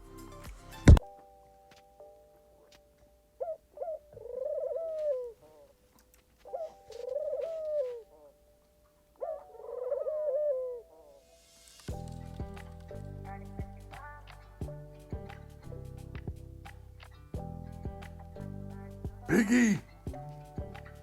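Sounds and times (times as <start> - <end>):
pigeon cooing: 3.4 - 5.8, 6.5 - 8.4, 9.2 - 11.3, 19.3 - 19.9.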